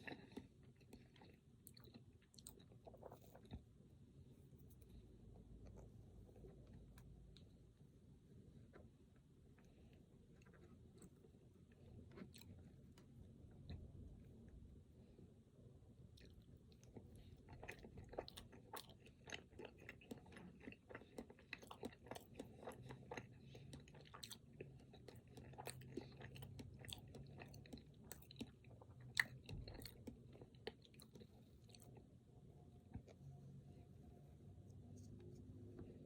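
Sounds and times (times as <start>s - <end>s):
wet chewing and mouth clicks: 0.0s - 3.7s, 16.1s - 32.1s.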